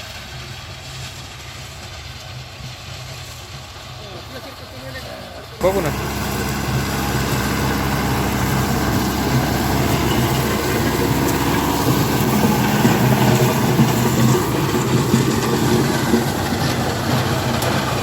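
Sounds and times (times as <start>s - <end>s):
tractor diesel engine running: 5.4s - 18.0s
rotary tiller chopping plants: 5.6s - 18.0s.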